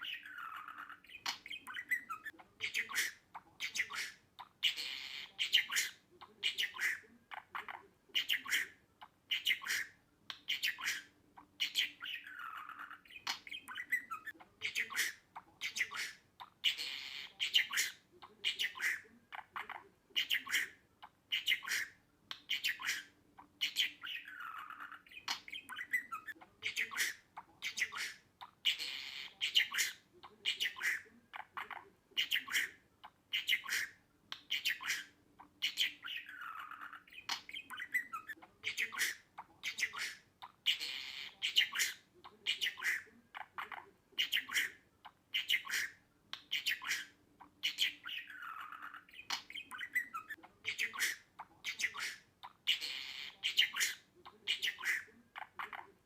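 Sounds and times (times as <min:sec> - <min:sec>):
budgerigar chirping and squawking: 0:00.0 - 0:56.0.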